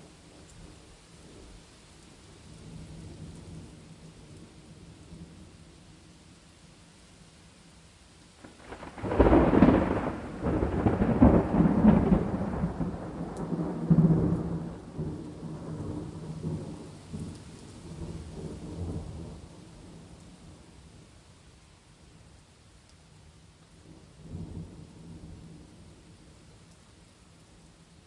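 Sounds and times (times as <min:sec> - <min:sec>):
faint steady rain: 0:00.0 - 0:28.0
thunderclap rumbling: 0:08.4 - 0:20.1.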